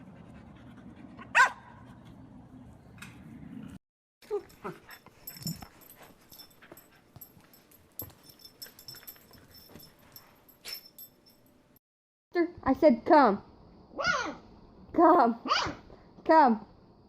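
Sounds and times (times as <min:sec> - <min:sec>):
faint clicks and shuffling: 0:04.2 - 0:11.4.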